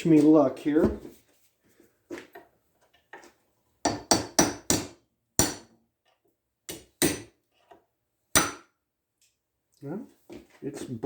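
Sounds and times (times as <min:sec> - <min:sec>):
hammer striking a metal punch: 0:03.8 - 0:05.7, 0:06.7 - 0:07.3, 0:08.4 - 0:08.7.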